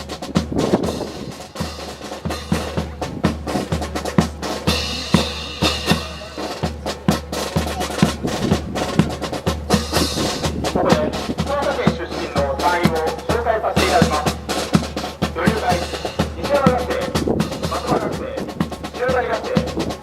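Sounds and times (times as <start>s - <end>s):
bass drum strokes: 0.0s - 13.3s
marching drums: 0.0s - 20.0s
snare drum strokes: 0.1s - 13.2s.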